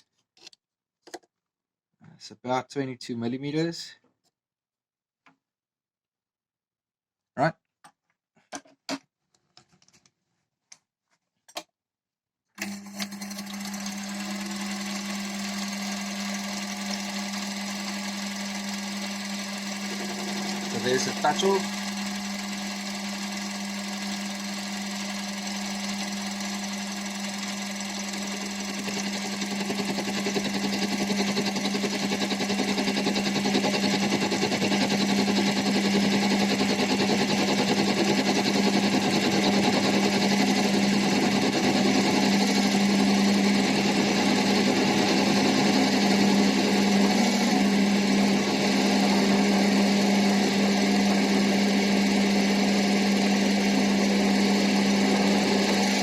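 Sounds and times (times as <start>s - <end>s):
lathe humming: 13.2s - 56.0s
lathe tool cutting metal: 13.8s - 56.0s.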